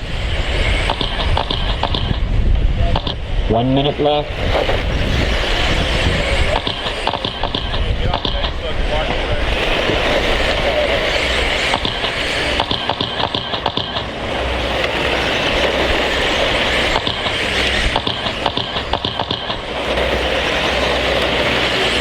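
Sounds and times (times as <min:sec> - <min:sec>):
rc truck motors and tyres: 0:00.0 - 0:22.0
clicks and clatter: 0:00.7 - 0:02.3, 0:02.9 - 0:03.2, 0:06.4 - 0:22.0.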